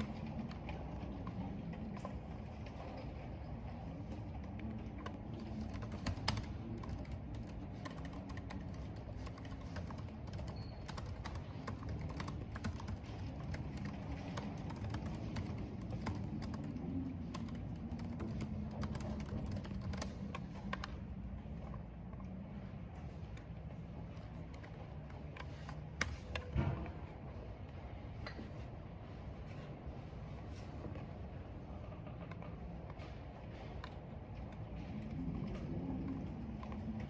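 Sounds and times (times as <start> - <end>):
computer keyboard typing: 4.3 - 21.8, 24.1 - 26.6.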